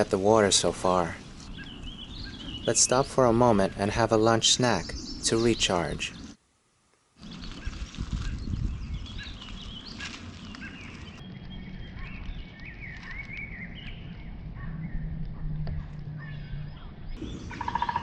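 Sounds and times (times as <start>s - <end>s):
birds calling: 0.0s - 6.4s, 7.2s - 18.0s
woodpecker rattling call: 16.2s - 18.0s.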